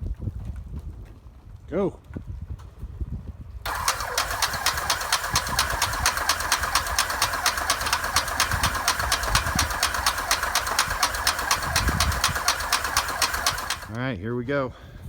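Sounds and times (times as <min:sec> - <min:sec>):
piston engine exhaust pulses: 0:03.7 - 0:14.0.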